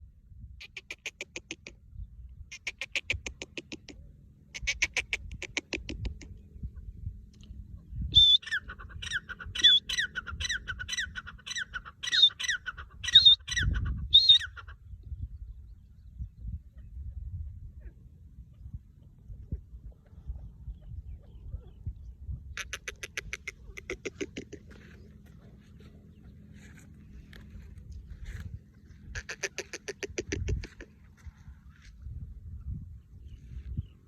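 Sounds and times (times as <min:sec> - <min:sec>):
francolin calling: 0:08.0 - 0:14.8.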